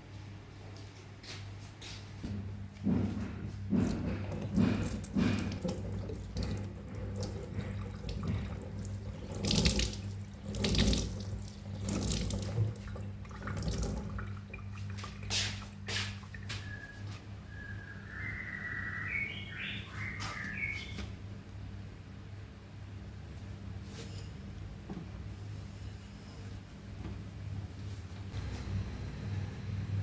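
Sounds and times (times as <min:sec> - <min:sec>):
knocks: 0:02.3 - 0:06.0
tap water splashing into sink: 0:03.7 - 0:16.4.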